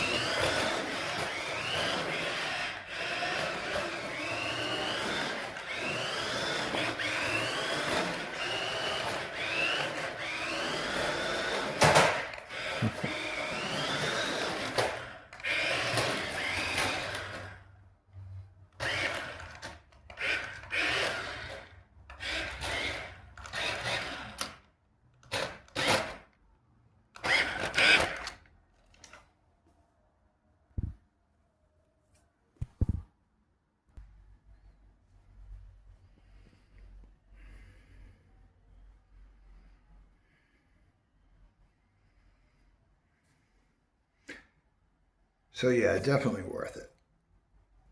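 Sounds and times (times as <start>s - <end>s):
rc car electric motor whining: 0.0s - 17.8s, 18.7s - 26.3s, 27.2s - 29.2s.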